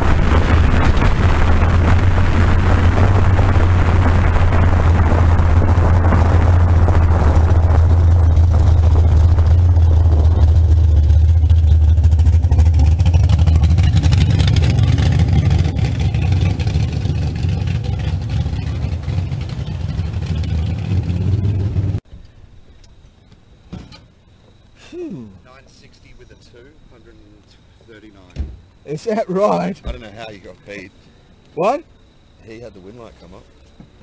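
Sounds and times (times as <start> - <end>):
dragster engine deep drone: 0.0 - 22.0.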